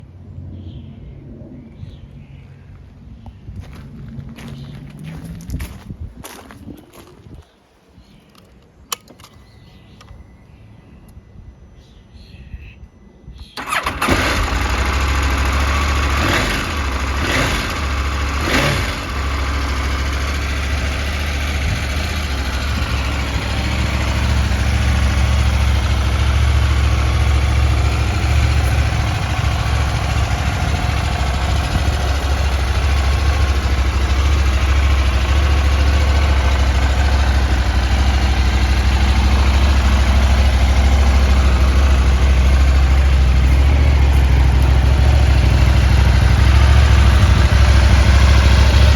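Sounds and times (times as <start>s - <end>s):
engine revving bursts: 13.6s - 48.9s
motorcycle engine idling: 13.6s - 48.9s.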